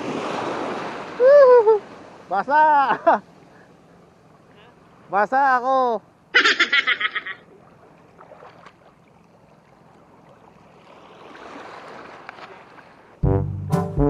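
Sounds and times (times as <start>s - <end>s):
person laughing: 1.2s - 1.8s, 2.5s - 3.2s, 6.4s - 7.4s.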